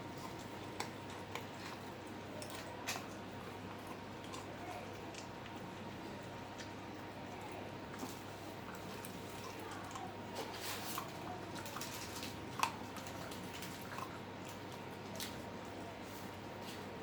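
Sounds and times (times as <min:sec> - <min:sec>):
dog chewing wetly: 0:00.0 - 0:17.0.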